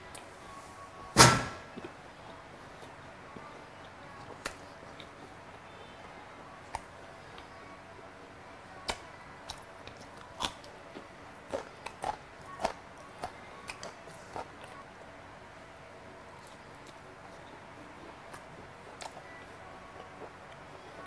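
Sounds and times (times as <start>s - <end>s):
crisp crunching while chewing: 8.8s - 14.8s.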